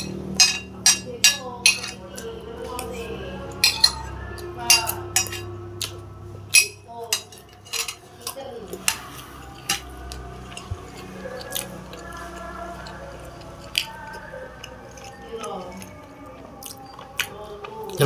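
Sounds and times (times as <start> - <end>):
cutlery clinking on plate: 0.0 - 2.0, 3.6 - 4.1, 4.7 - 5.5, 6.5 - 10.8.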